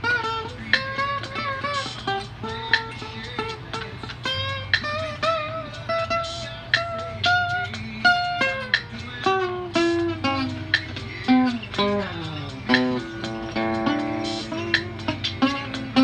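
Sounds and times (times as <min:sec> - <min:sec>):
guitar plucked melody: 0:00.0 - 0:16.0.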